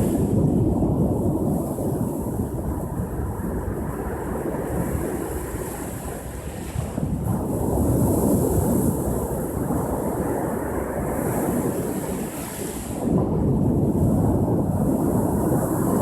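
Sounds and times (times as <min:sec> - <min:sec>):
wind rumbling on microphone: 0:00.0 - 0:16.0
ocean surf washing ashore: 0:07.6 - 0:16.0.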